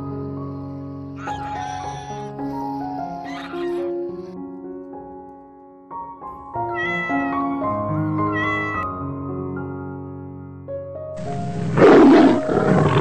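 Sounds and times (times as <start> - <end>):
background music: 0.0 - 13.0
cat meowing: 3.2 - 3.9, 6.7 - 8.8.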